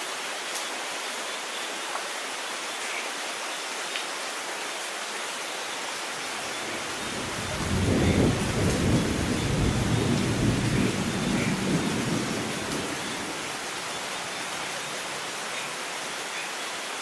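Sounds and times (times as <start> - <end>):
rain hissing: 2.3 - 17.0
low rumble of thunder: 6.7 - 13.5.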